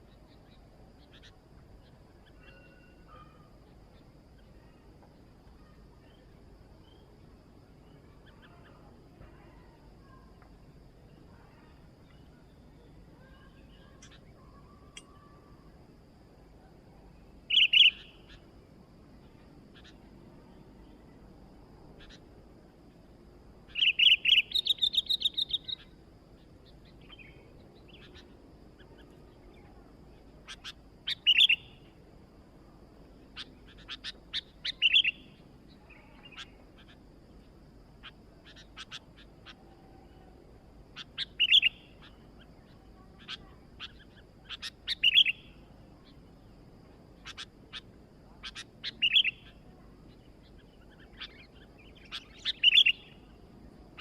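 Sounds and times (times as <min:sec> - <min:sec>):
bird chattering notes: 0:47.2 - 0:49.6.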